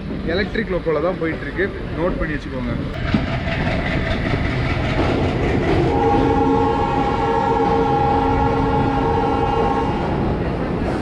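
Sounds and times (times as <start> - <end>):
train wheels rumbling on rails: 0.0 - 11.0
locomotive horn chord: 5.8 - 10.3.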